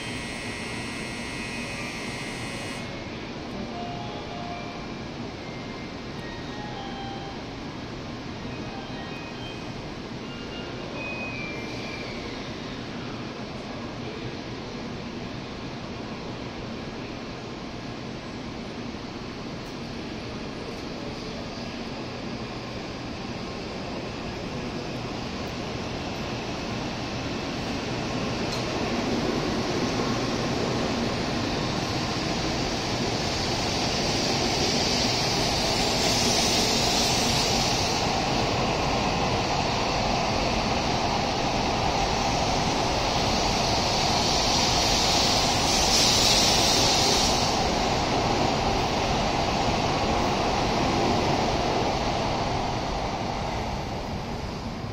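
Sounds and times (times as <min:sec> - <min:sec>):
train running noise: 0:00.0 - 0:54.9
bright hiss: 0:33.2 - 0:38.8, 0:42.7 - 0:49.2.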